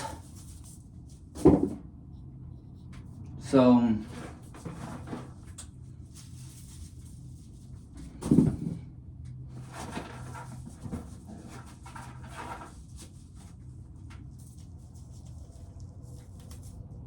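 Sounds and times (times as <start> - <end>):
corn kernels rattling and scraping: 0.0 - 0.7, 4.1 - 5.6, 9.5 - 13.5.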